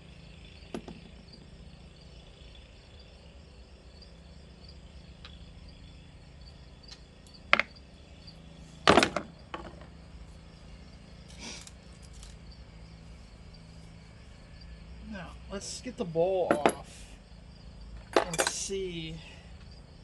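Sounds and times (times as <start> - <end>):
crickets chirping: 0.0 - 20.0
hand tools knocking and clanking: 16.5 - 16.9, 18.0 - 18.7.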